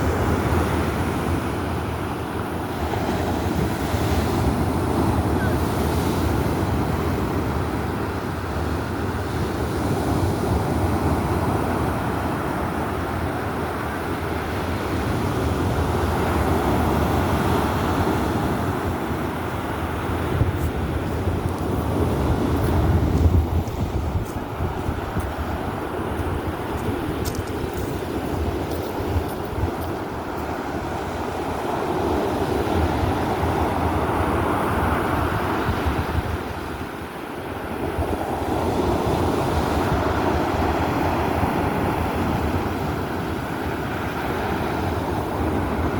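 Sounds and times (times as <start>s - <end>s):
rough surf rushing: 0.0s - 45.9s
wind rumble on microphone: 0.0s - 45.9s.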